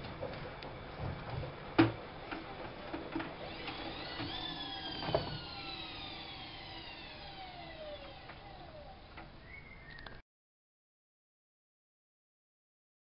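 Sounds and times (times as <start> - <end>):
washing machine spin whining down: 0.0 - 9.8.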